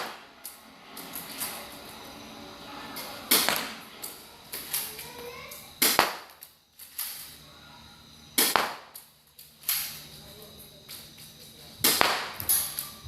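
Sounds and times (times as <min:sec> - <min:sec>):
airsoft pistol shots: 0:00.0 - 0:00.2, 0:03.3 - 0:03.8, 0:05.8 - 0:06.4, 0:08.4 - 0:09.0, 0:11.8 - 0:12.7.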